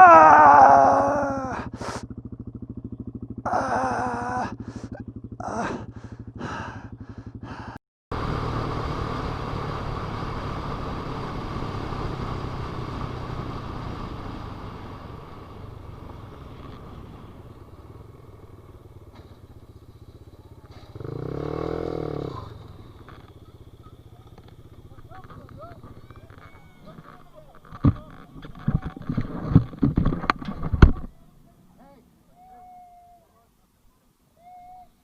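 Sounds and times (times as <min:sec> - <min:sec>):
motorcycle engine revving: 0:00.0 - 0:31.8
motorcycle engine running: 0:00.1 - 0:32.0.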